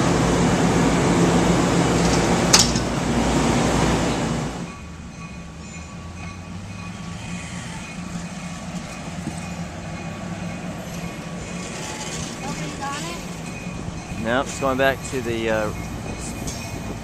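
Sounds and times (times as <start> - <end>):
train cars rolling past: 0.0 - 17.0.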